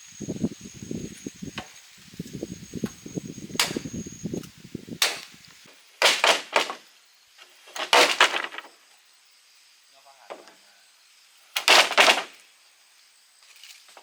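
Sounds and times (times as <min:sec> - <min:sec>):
sharp bamboo cracks: 0:03.6 - 0:06.9, 0:07.6 - 0:08.7, 0:11.5 - 0:12.5.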